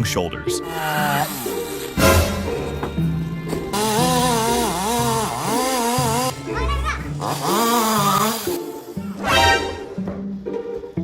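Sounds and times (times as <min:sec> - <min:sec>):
background music: 0:00.0 - 0:11.0
chainsaw cutting: 0:00.6 - 0:02.3, 0:03.7 - 0:08.8.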